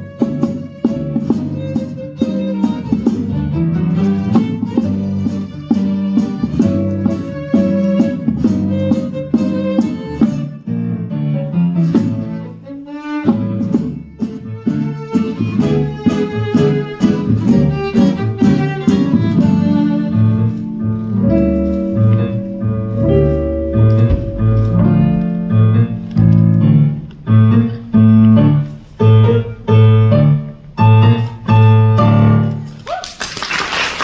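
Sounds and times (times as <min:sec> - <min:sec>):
piano: 0:00.0 - 0:34.0
bowed strings: 0:11.4 - 0:32.6
deep bass line: 0:20.7 - 0:31.2.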